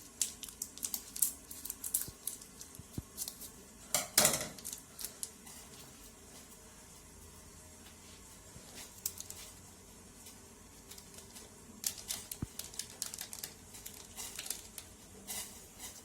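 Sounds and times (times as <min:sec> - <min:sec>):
plastic sachet crackling rustles: 0:00.0 - 0:03.6, 0:04.6 - 0:05.8, 0:08.7 - 0:09.6, 0:10.8 - 0:14.9.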